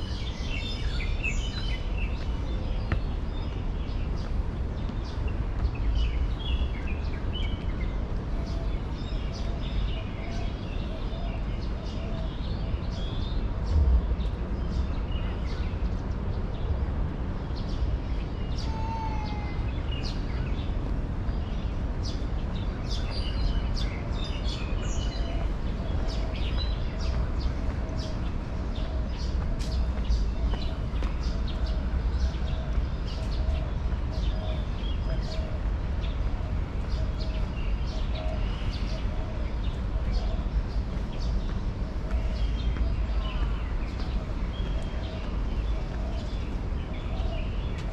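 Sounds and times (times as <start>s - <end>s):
steady low rumble: 0.0s - 18.1s
birds chirping and calling: 17.6s - 47.9s.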